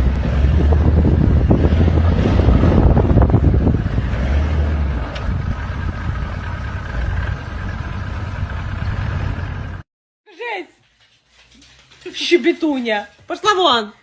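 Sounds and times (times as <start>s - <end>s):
loud low rumble: 0.0s - 9.8s
wind buffeting microphone: 0.0s - 9.8s.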